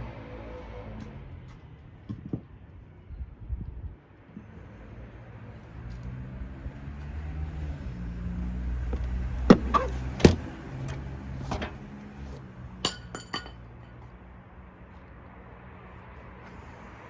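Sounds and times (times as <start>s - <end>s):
small hard parts clinking: 8.9s - 14.1s.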